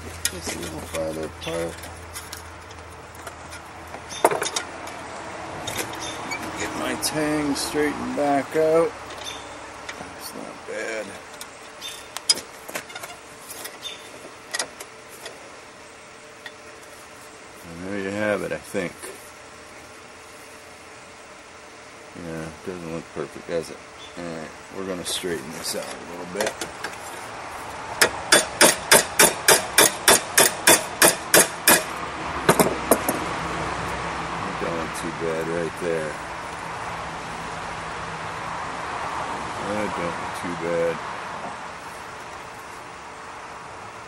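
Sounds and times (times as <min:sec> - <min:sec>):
steel clinks and knocks: 0:28.0 - 0:31.9.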